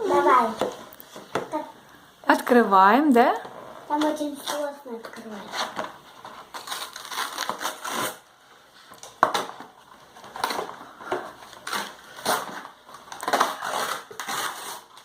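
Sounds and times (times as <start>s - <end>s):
packaging torn and crinkled: 6.4s - 8.3s, 11.5s - 15.0s.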